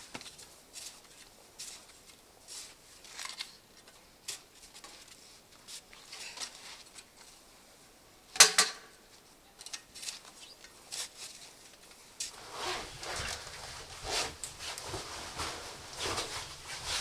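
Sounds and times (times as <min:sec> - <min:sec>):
handling clicks and rustles: 0:12.2 - 0:17.0.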